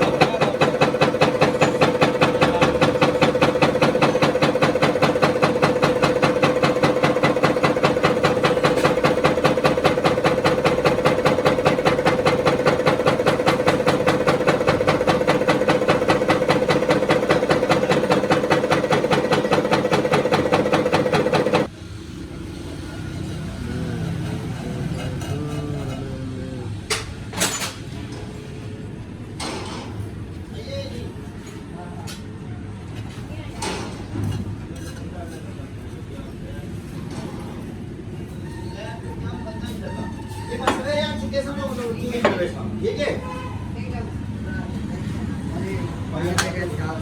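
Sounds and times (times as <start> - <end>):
tractor diesel engine idling: 0.0 - 21.7.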